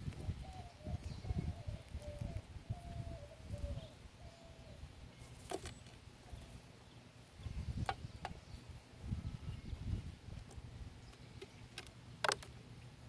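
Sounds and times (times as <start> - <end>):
dove cooing: 0.0 - 6.7.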